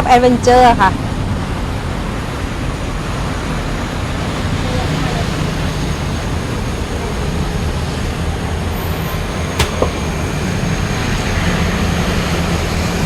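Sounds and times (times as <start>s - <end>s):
moka pot hissing and rumbling: 3.7s - 10.6s.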